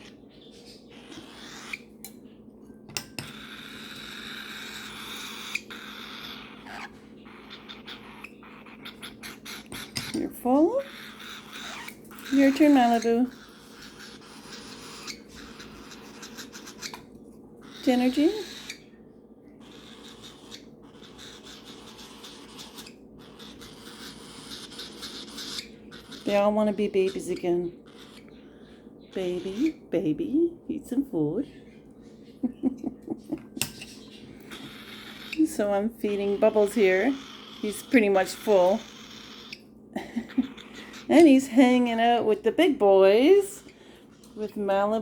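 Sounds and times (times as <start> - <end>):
parrots eating off a spoon: 0.0 - 19.0, 19.6 - 29.8, 31.6 - 45.0.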